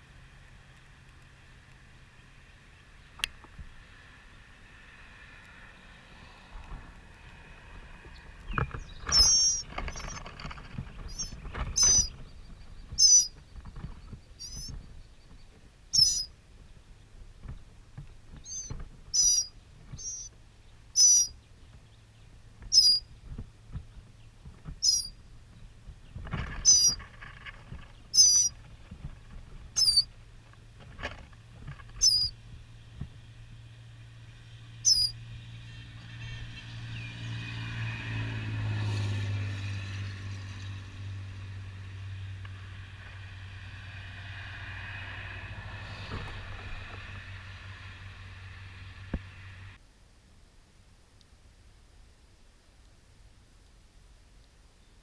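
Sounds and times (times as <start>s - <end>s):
low hum: 0.0s - 55.0s
bird chirping: 8.1s - 17.7s, 18.4s - 23.1s, 23.8s - 28.8s, 29.7s - 30.2s, 31.8s - 33.0s, 34.5s - 37.3s.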